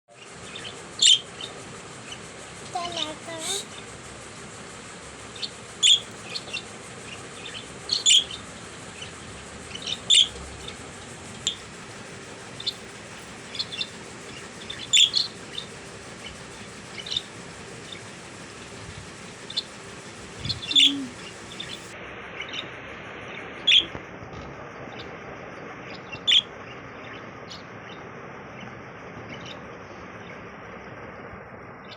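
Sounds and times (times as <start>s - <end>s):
budgerigars chirping: 0.1s - 4.3s, 5.3s - 22.6s, 23.6s - 24.0s, 25.8s - 28.0s, 29.3s - 29.6s.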